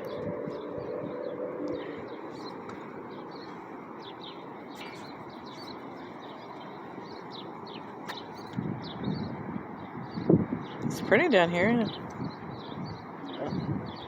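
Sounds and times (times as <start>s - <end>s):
wind rushing on microphone: 0.0s - 3.4s, 7.1s - 14.0s
small birds chirping: 0.0s - 14.0s.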